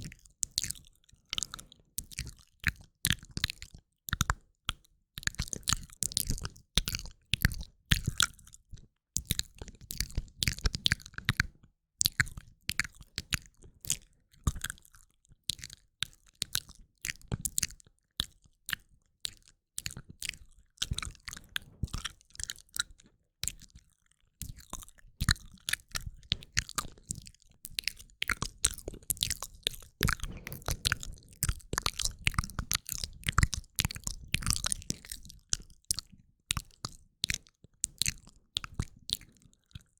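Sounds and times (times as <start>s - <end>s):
mouth clicks and smacks: 26.4s - 39.4s.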